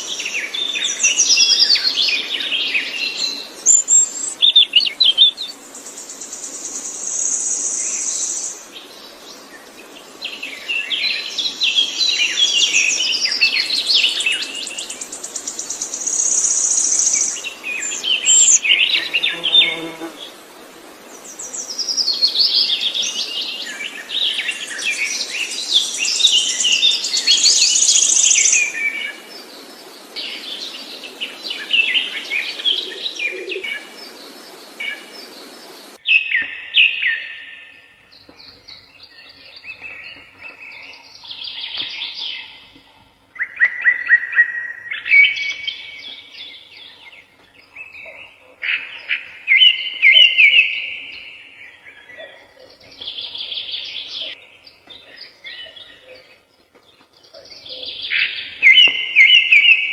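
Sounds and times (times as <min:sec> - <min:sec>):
background hiss: 0:00.0 - 0:59.9
songbirds singing: 0:00.0 - 0:59.9.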